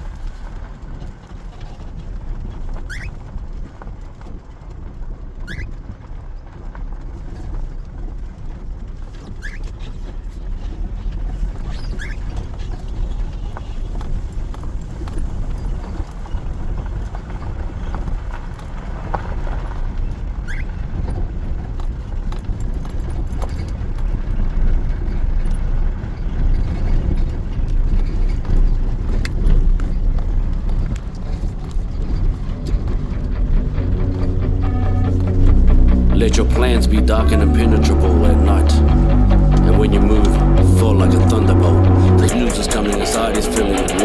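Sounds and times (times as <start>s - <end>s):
low rumbling road noise: 27.2s - 42.3s.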